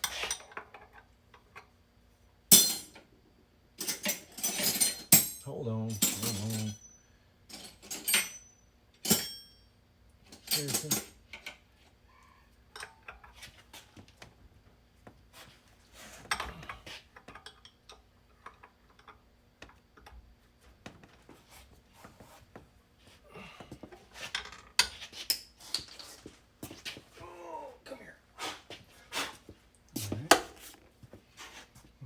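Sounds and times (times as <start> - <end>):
faint steady hum: 0.0 - 32.0
metal parts and tools clinking: 2.5 - 3.0, 3.8 - 9.6, 10.3 - 11.5.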